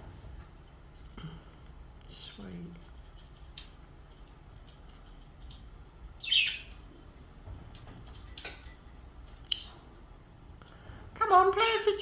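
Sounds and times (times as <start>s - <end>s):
budgerigar chirping call: 6.2s - 6.7s.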